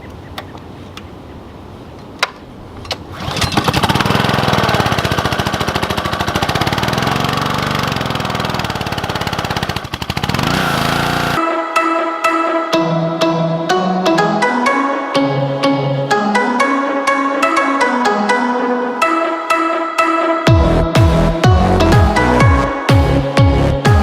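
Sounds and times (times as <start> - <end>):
small gasoline engine running: 3.1 - 11.4.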